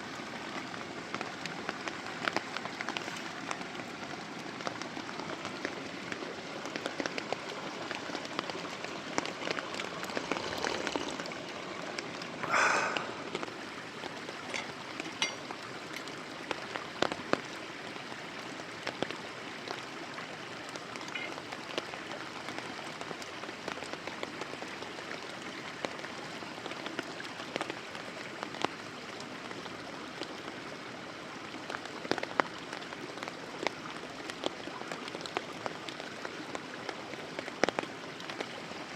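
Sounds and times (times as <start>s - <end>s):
campfire crackling and popping: 0.1s - 22.2s.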